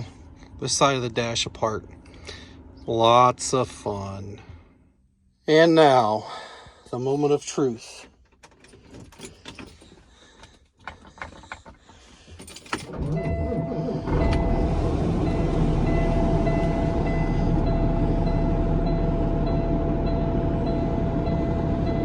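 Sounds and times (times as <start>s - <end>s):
diesel truck engine starting and idling: 0.0s - 4.6s, 11.0s - 22.0s
faint clicks and knocks: 8.3s - 12.5s
steady high-pitched tone: 14.4s - 22.0s.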